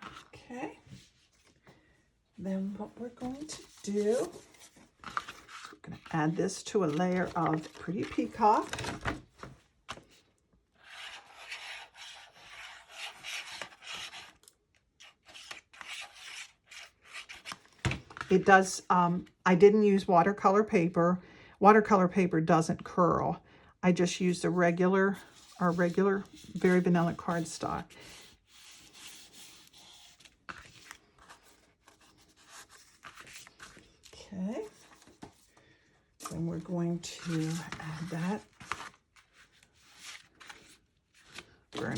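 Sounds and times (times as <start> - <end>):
paper rustling: 3.0 - 10.2, 10.8 - 18.3, 25.1 - 41.9.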